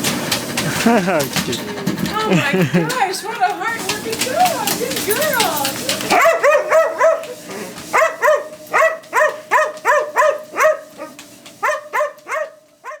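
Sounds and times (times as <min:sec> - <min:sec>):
dog yelping barks: 0:06.1 - 0:13.0.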